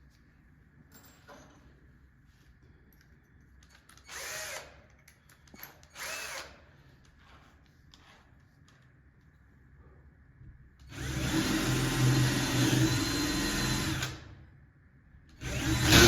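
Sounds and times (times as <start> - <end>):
power drill bursts: 4.1 - 4.7, 5.9 - 6.6, 10.9 - 14.2, 15.4 - 16.0.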